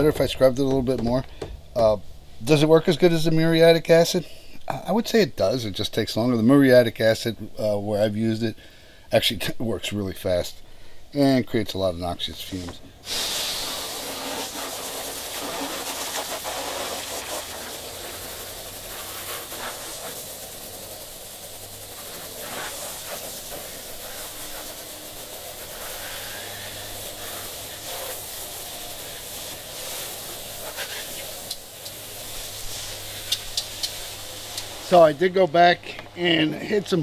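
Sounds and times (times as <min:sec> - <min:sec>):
faint knocks: 0:00.2 - 0:01.8
liquid spraying onto boat hull: 0:13.0 - 0:35.3.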